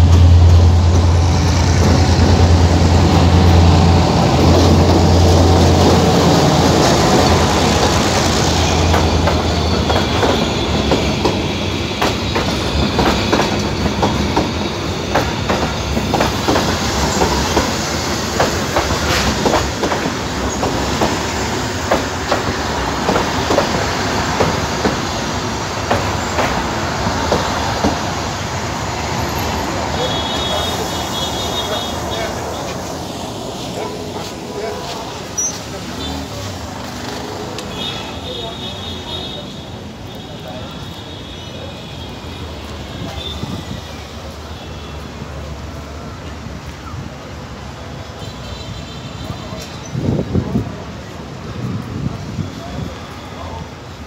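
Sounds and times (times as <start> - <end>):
diesel locomotive engine humming: 0.0 - 48.1
train wheels clacking on rail joints: 4.4 - 28.3.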